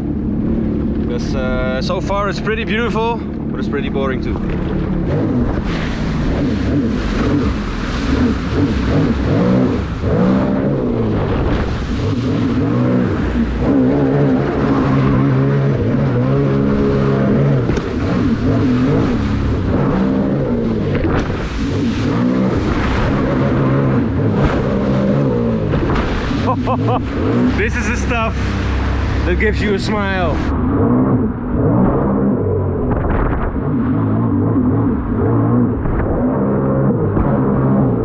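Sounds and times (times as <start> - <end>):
personal watercraft engine revving: 0.0 - 38.0
water and wind hiss: 4.9 - 15.8, 16.8 - 30.5.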